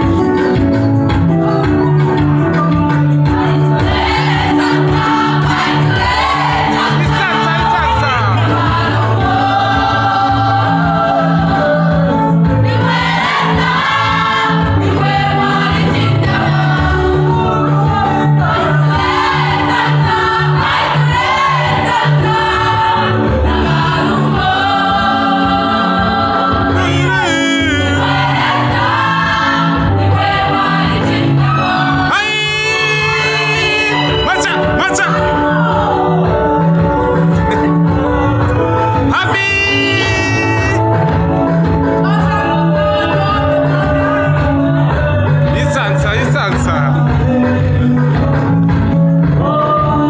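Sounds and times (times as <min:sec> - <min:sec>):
bass line: 0:00.0 - 0:50.0
band playing: 0:00.9 - 0:11.0, 0:12.8 - 0:49.1
choir singing: 0:03.0 - 0:41.0, 0:41.8 - 0:46.9.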